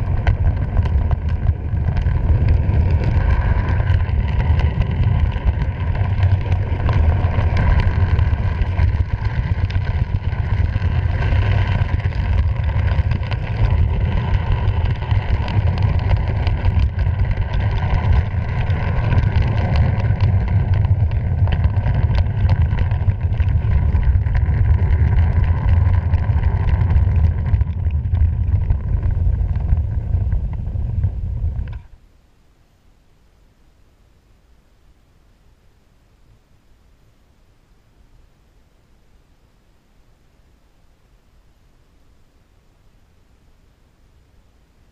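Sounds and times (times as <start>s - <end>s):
wind on microphone: 0.0s - 32.0s.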